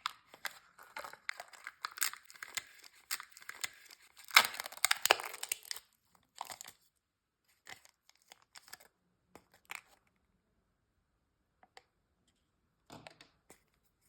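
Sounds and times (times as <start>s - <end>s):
plastic wrapper crinkling: 0.0s - 6.8s, 7.7s - 8.9s.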